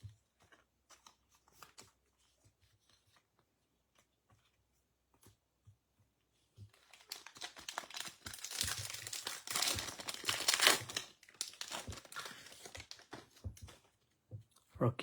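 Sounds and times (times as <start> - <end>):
foil wrapper crinkling and ripping: 6.8 - 13.4.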